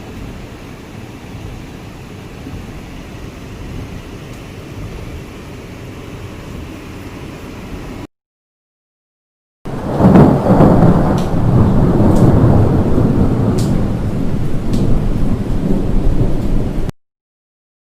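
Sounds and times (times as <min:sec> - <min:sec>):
thunder rumble: 0:00.0 - 0:06.9, 0:09.7 - 0:16.9
rain hiss: 0:00.0 - 0:08.1, 0:09.7 - 0:16.9.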